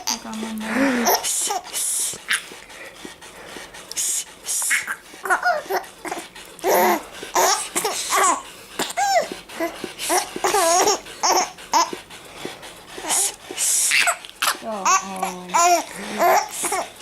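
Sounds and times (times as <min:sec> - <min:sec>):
person making hissing sounds: 0:00.5 - 0:12.0, 0:13.0 - 0:14.6
baby giggling and squealing: 0:04.6 - 0:09.3, 0:10.1 - 0:11.9.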